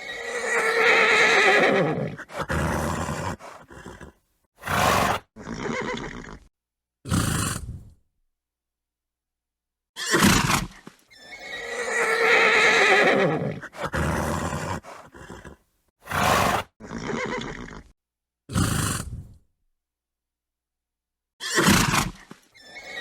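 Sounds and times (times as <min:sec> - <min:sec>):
horse whinny: 0:00.0 - 0:06.5, 0:10.0 - 0:17.9, 0:21.4 - 0:23.0.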